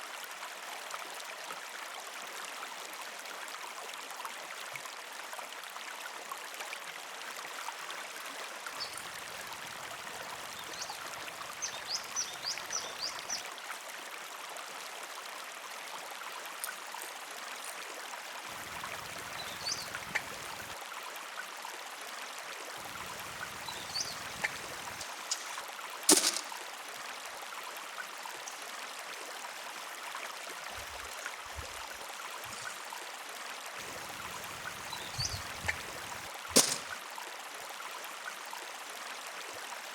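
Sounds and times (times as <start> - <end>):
river water flowing: 7.6 - 14.5, 16.0 - 21.6, 22.4 - 38.3
sharp knock: 36.5 - 37.0.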